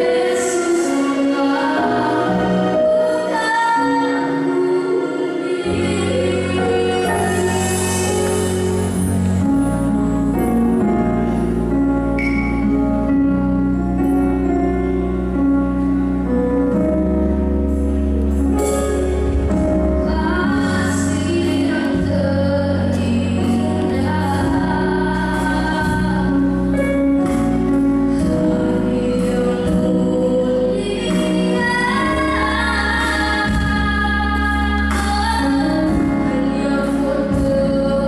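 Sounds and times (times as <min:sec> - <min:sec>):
woman singing slow song: 0:00.0 - 0:09.3, 0:19.9 - 0:27.0, 0:28.1 - 0:38.0
instrumental accompaniment: 0:00.0 - 0:38.0.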